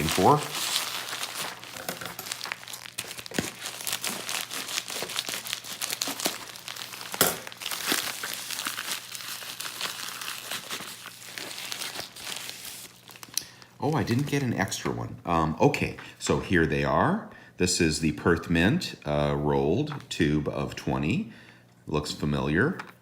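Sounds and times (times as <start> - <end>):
wrap snapping: 0.0 - 13.4
packaging wrap crinkling and tearing: 0.0 - 14.4.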